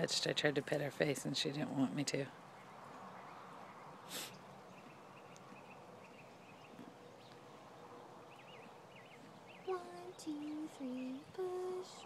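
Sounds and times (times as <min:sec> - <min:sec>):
faint bird chirps and trills: 0:02.5 - 0:12.0.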